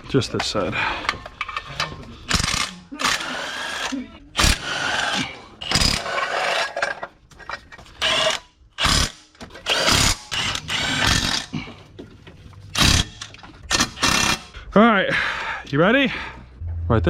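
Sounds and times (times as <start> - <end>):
power tool bursts on bolt: 2.3 - 6.7, 12.8 - 14.5.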